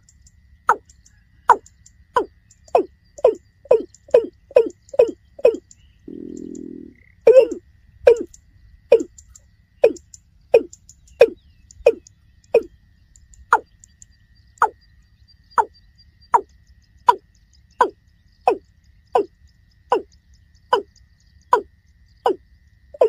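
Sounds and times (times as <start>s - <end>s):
bird calling hollow notes: 1.5s - 12.7s, 16.4s - 19.3s, 19.9s - 20.1s, 20.7s - 22.4s.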